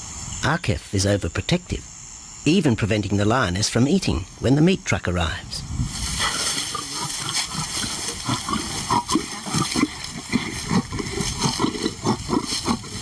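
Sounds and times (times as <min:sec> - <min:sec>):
lions growling: 0:06.2 - 0:13.0.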